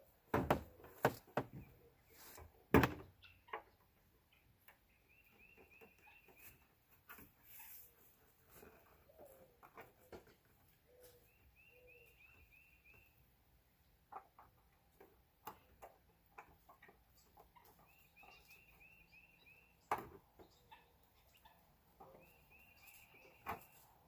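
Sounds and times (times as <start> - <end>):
bird chirping: 3.1 - 6.7, 9.0 - 14.5, 15.4 - 24.0.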